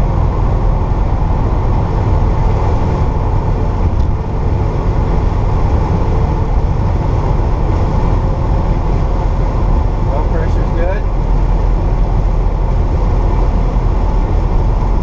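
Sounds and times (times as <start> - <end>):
car engine drone: 0.0 - 15.0
road noise: 0.0 - 15.0.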